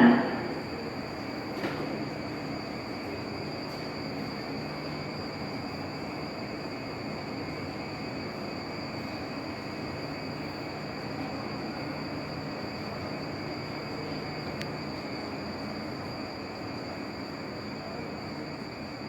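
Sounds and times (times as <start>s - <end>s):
low hum: 0.0s - 1.0s
high whine: 0.0s - 1.2s.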